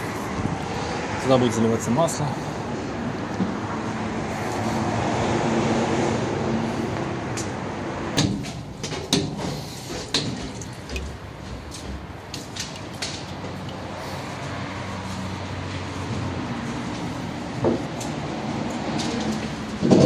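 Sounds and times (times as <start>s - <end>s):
sharp clicks and knocks of tools: 8.2s - 13.8s.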